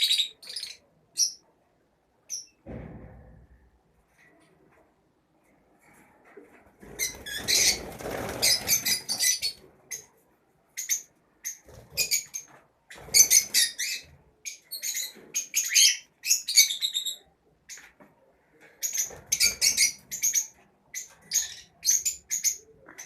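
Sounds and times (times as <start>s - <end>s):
lovebirds chirping: 0.0s - 1.5s, 6.9s - 17.9s
wings flapping: 6.8s - 9.6s.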